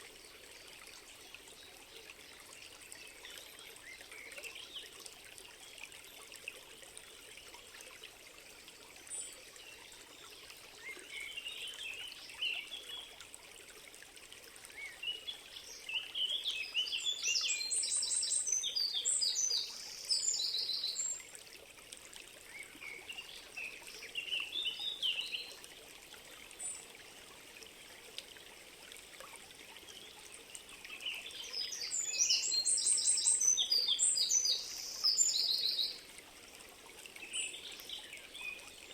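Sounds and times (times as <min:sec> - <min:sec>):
trickling stream: 0:00.0 - 0:38.9
songbirds singing: 0:14.7 - 0:21.2, 0:22.5 - 0:25.6, 0:29.9 - 0:36.1.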